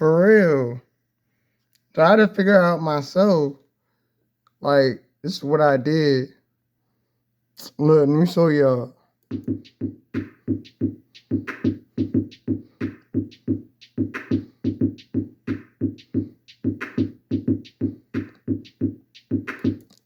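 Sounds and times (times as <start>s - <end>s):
hip hop drum loop: 9.3s - 20.0s.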